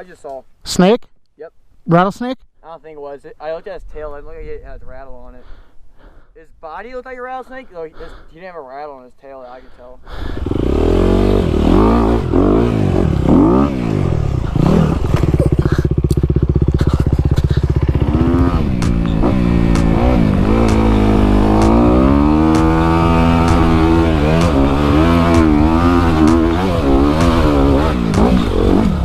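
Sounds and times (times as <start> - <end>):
dirt bike engine revving: 10.2 - 29.0
sharp clicks: 16.1 - 16.4, 18.7 - 28.8.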